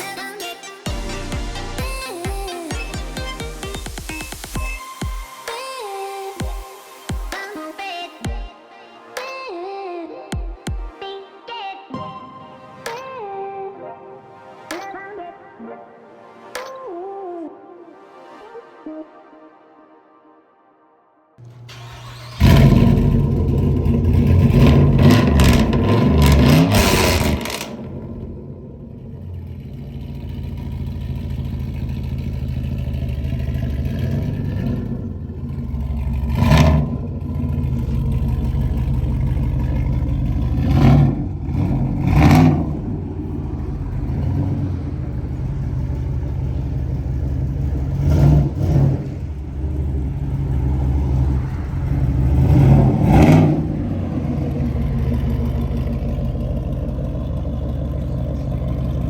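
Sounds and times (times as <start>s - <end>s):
car engine droning: 21.4s - 59.0s
engine throttle bursts: 21.4s - 59.0s.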